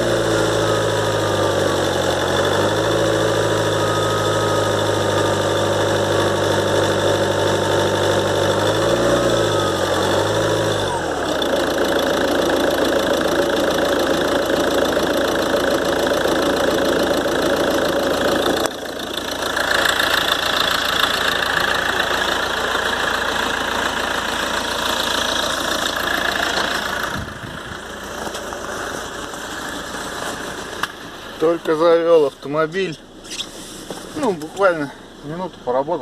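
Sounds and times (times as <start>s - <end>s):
turbocharger whistle: 0.0s - 11.2s
diesel engine idling: 0.0s - 36.0s.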